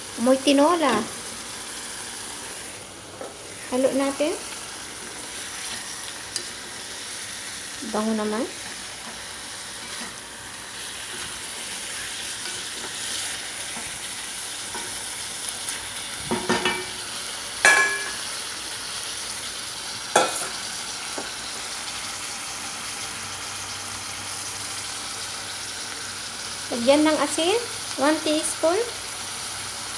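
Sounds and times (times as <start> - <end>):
chicken sizzling in a pot: 0.0 - 29.9
knocks against a pot: 17.7 - 18.2.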